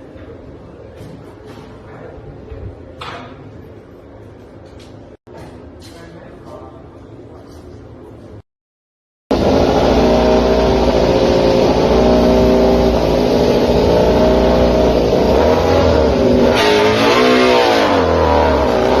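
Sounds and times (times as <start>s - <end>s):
racing motorcycle engine at high revs: 9.3s - 19.0s.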